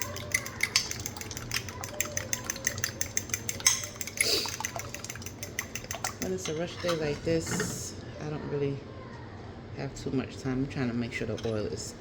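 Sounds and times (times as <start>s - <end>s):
utensil clicking against bowl: 0.0s - 7.1s
eggs sloshing: 0.0s - 7.9s.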